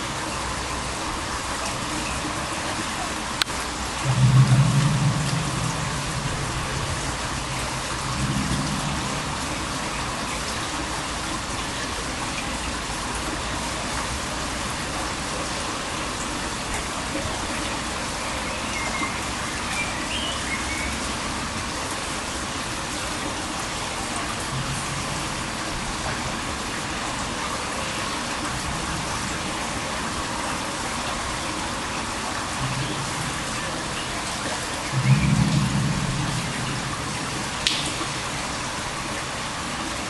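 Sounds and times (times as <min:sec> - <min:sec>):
steady rain-like hiss: 0:00.0 - 0:40.0
low droning hum: 0:03.4 - 0:11.6, 0:32.6 - 0:39.2.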